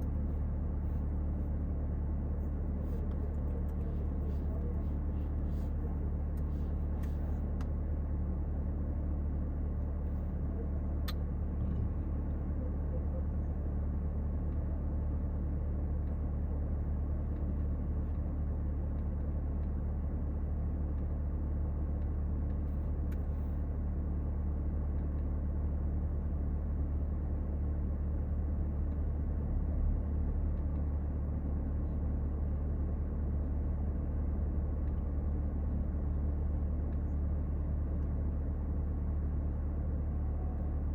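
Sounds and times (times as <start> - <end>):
car engine rumbling: 0.0 - 21.1.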